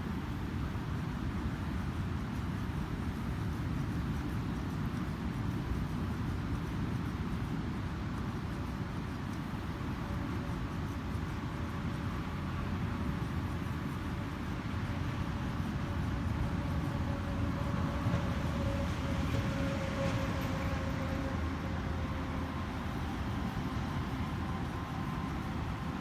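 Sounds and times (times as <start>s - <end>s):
ocean surf rumble: 8.0s - 26.0s
faint droning tone: 9.3s - 26.0s.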